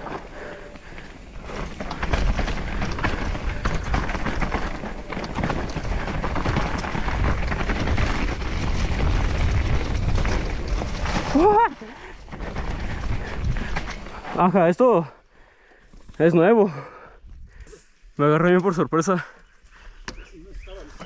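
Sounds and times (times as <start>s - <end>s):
bike tyres rolling: 0.0s - 18.0s
bike rattling over rough ground: 0.0s - 21.0s
wind rumble on microphone: 1.6s - 11.6s, 12.2s - 14.2s.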